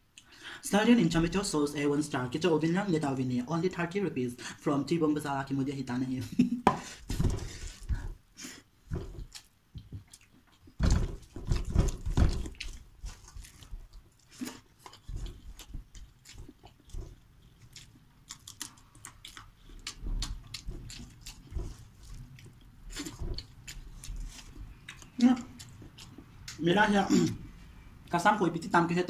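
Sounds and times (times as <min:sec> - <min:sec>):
wet chewing and mouth clicks: 0:09.0 - 0:26.6.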